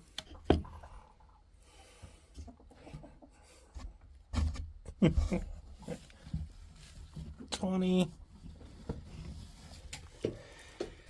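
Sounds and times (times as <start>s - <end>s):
hands rustling in nest box: 2.9s - 10.6s.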